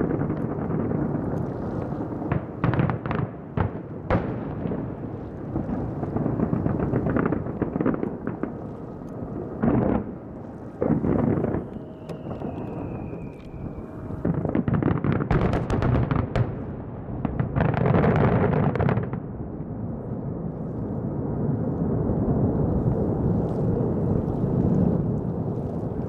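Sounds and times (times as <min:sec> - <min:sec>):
fireworks bursting: 0:00.0 - 0:19.2.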